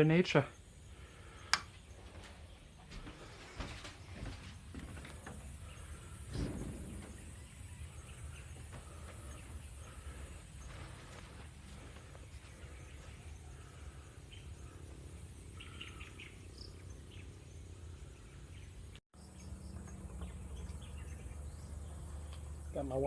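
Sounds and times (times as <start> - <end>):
insects: 0.0 - 23.0.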